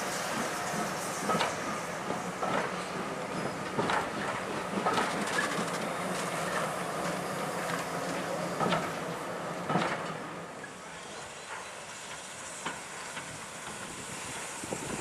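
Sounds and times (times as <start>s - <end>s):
train carriages rumbling: 0.0s - 15.0s.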